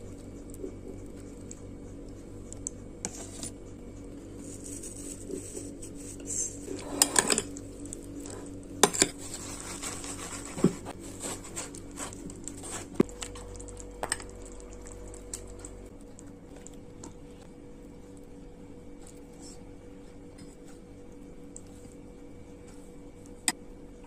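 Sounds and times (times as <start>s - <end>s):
spoon scraping dish: 3.1s - 3.6s, 4.5s - 7.6s, 8.3s - 10.9s.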